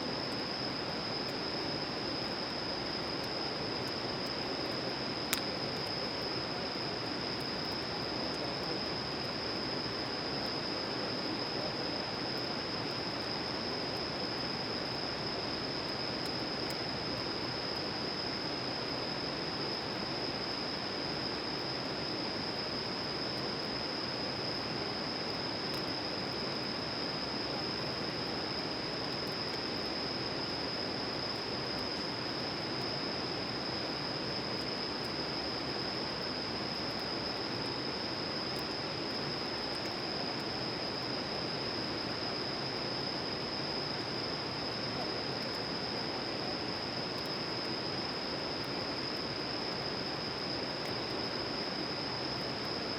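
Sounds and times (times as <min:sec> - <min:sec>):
high-pitched insect chorus: 0:00.0 - 0:52.9
faint ticks: 0:05.3 - 0:06.0, 0:25.7 - 0:25.9.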